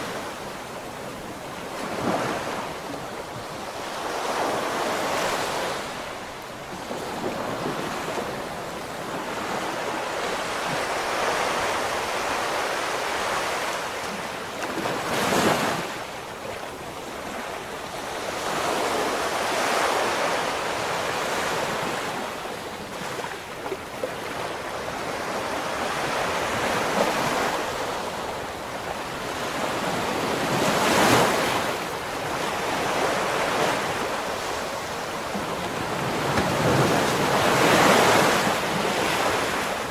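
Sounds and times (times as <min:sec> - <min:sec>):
ocean waves washing: 0:18.3 - 0:39.9
waves breaking with crashes: 0:32.4 - 0:39.9.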